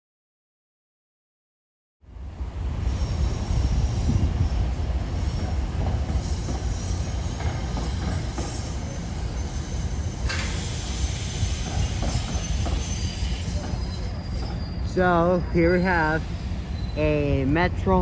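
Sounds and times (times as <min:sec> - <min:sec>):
train rumbling slowly: 0:02.0 - 0:18.0
train wheel squeals: 0:02.8 - 0:17.4
hiss: 0:09.4 - 0:13.7.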